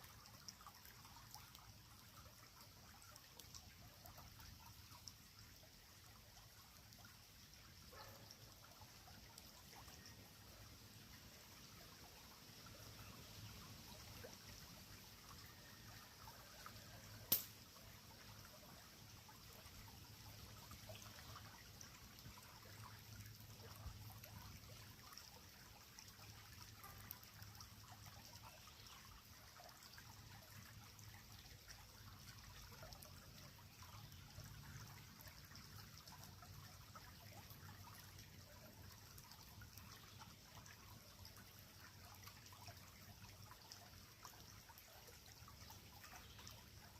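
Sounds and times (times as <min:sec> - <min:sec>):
creek water trickling: 0:00.0 - 0:46.9
fire popping: 0:17.3 - 0:17.6
wood fire crackling: 0:17.3 - 0:17.6.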